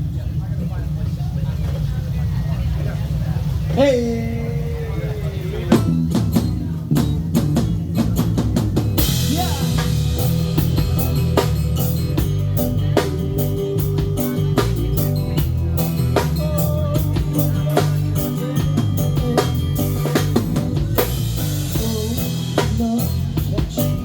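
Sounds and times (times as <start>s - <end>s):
bass line: 3.7s - 24.0s
drum kit: 5.4s - 24.0s
cymbal crash: 9.0s - 13.2s.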